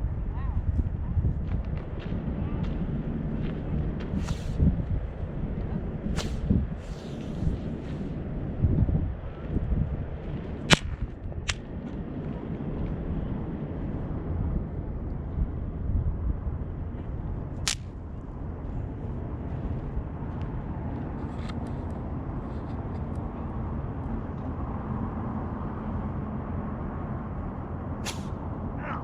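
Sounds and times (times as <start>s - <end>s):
low background rumble: 0.0s - 29.0s
firework sharp crack: 4.2s - 4.5s, 6.2s - 7.0s, 10.7s - 11.6s, 28.0s - 28.4s
faint firework crackles: 4.2s - 4.6s, 6.2s - 7.4s.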